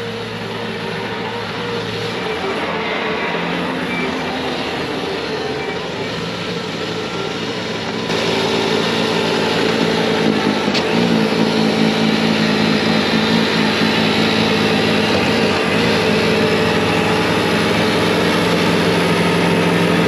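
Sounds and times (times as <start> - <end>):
diesel engine at full throttle: 0.0 - 20.0.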